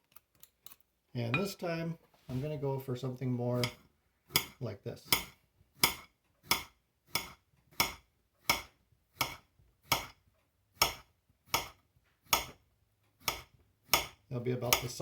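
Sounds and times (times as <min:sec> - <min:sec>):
knife slicing cucumber: 0:13.2 - 0:15.0.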